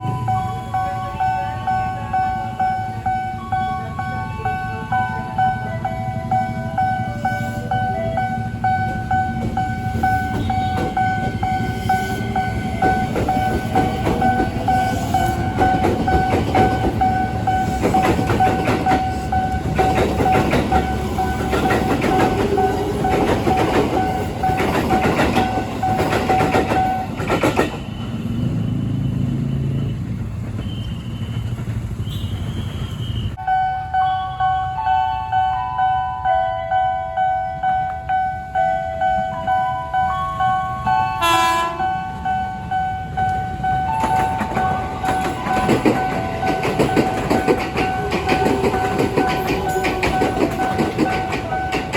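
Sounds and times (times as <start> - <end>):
train rumble: 0.0 - 34.3, 37.0 - 51.9
train whine: 0.0 - 51.9
train wheels clattering over rail joints: 12.5 - 28.2, 44.0 - 51.9.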